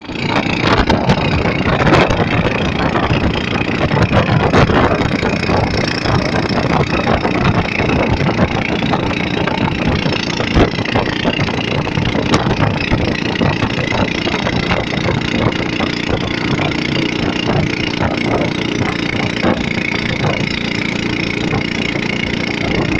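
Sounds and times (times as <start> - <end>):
boat engine running: 0.0 - 22.9.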